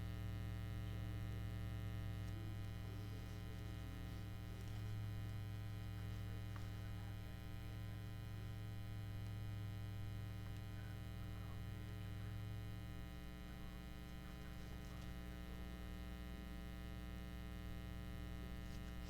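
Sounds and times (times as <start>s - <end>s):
electrical mains hum: 0.0s - 19.0s
faint handling noises: 2.2s - 8.5s, 13.5s - 15.6s, 18.6s - 19.0s.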